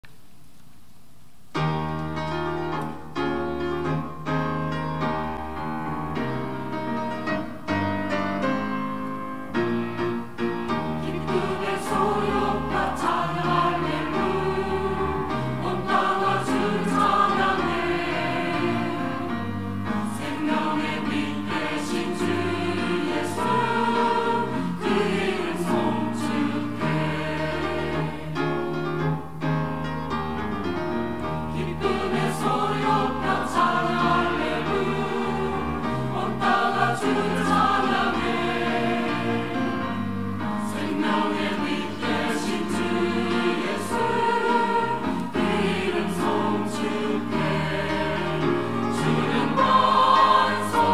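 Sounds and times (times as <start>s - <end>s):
church choir singing: 9.5s - 29.2s, 31.2s - 50.9s.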